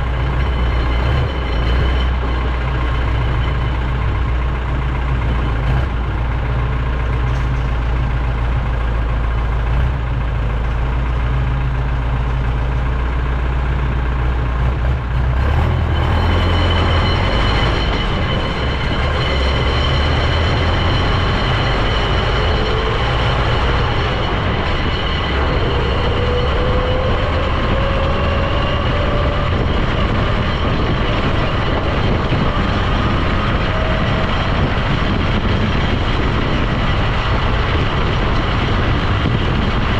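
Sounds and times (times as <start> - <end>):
heavy vehicle engine rumble: 0.0 - 39.9
faint rising whine: 15.8 - 39.9.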